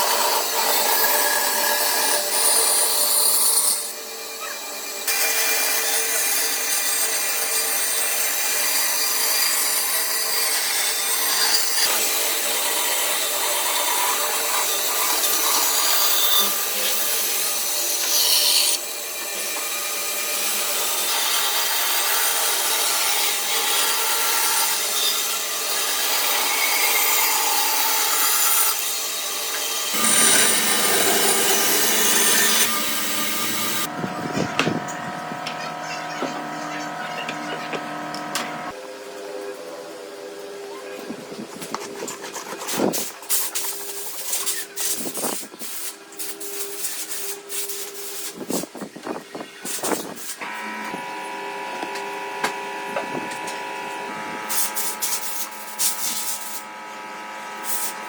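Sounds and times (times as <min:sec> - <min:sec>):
tools rasping on wood: 0:29.9 - 0:38.7.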